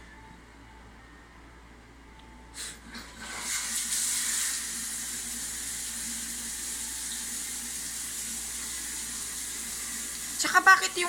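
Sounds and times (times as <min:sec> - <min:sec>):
water running with a hiss: 0:02.6 - 0:11.0
person talking: 0:10.4 - 0:11.0.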